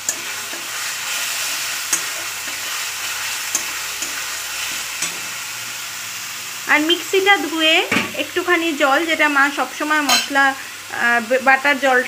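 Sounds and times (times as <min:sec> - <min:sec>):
masala sizzling in oil: 0:00.0 - 0:12.0.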